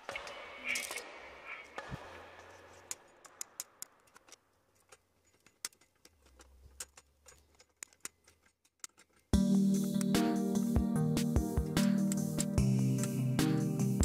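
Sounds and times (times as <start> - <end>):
flush cutters snipping wire leads: 11.7 - 13.3.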